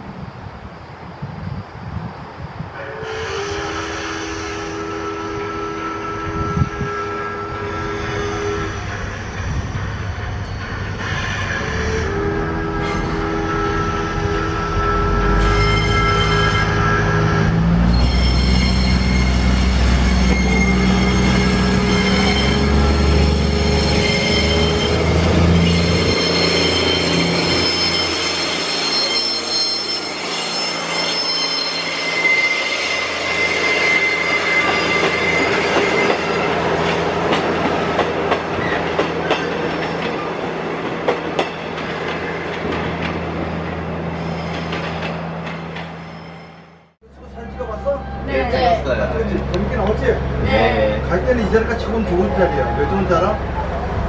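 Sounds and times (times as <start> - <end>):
train wheels squealing: 7.8 - 12.1, 15.2 - 37.0, 43.4 - 45.2, 45.8 - 46.9.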